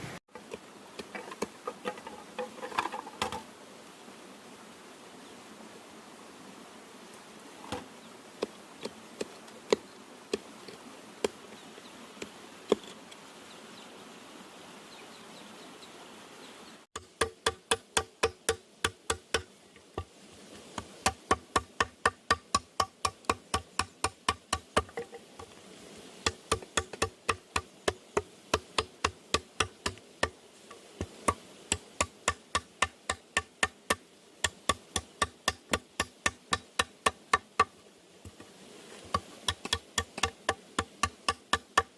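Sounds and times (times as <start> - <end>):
faint background hiss: 0.0 - 41.9
hand tool knocking on bamboo: 17.0 - 20.1, 21.0 - 25.5, 26.2 - 30.4, 31.0 - 37.7, 39.1 - 41.9.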